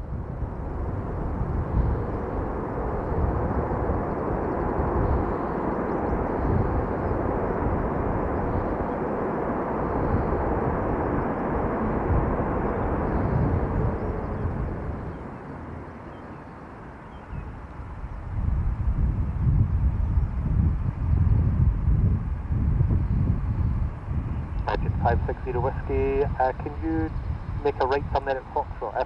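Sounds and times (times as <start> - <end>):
jet engines rumbling: 0.3 - 17.0, 23.0 - 29.0.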